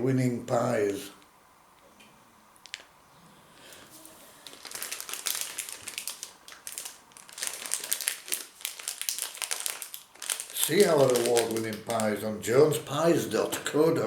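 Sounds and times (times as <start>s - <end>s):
plastic wrapper crinkling: 2.6s - 2.9s, 4.4s - 12.4s.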